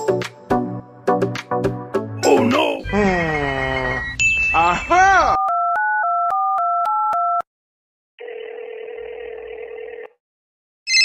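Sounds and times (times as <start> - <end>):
telephone ringing tone: 8.2 - 10.2.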